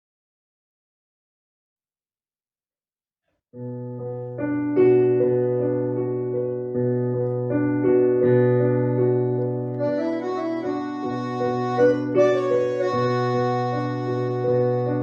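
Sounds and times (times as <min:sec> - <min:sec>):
keyboard chords over bass note: 0:09.8 - 0:15.0.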